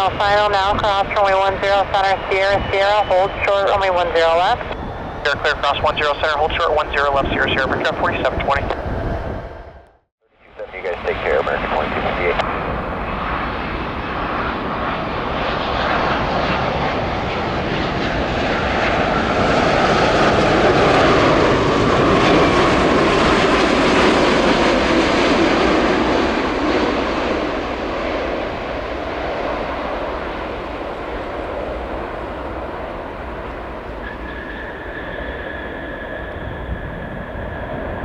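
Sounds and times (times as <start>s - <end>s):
airliner engine noise passing overhead: 0.0s - 38.0s
jet whine dropping in pitch: 0.0s - 38.0s.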